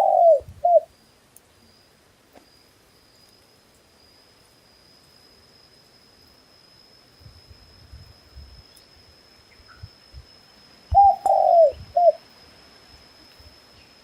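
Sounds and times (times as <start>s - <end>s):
dove cooing: 0.0s - 0.9s, 10.9s - 12.2s.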